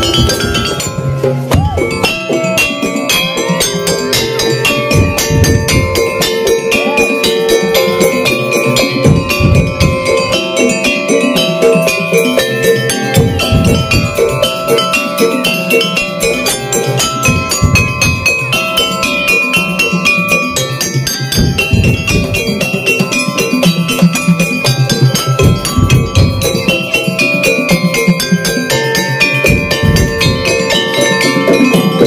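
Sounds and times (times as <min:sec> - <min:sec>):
heavy drum beats: 0:00.0 - 0:32.0
metal gongs and bells struck: 0:00.0 - 0:32.0.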